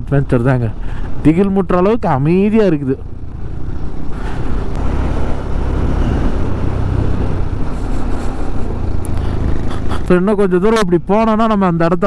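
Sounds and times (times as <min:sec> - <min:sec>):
wind and road noise: 0:00.0 - 0:12.0
motorcycle engine rumble: 0:02.2 - 0:11.3.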